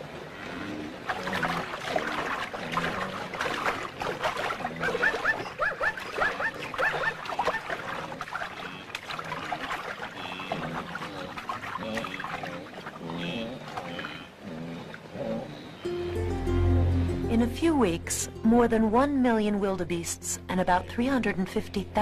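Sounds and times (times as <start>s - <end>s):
animal yelps and squeals: 4.8s - 7.7s.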